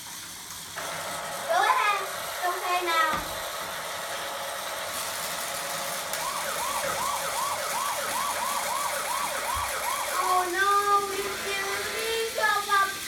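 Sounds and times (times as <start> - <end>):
toy train warbling siren: 0.8 - 13.0
steady hiss: 10.2 - 13.0.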